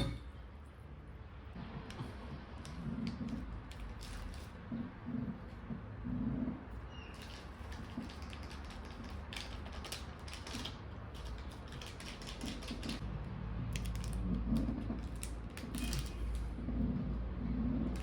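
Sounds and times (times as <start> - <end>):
chewing crispy chicken: 7.2 - 13.0.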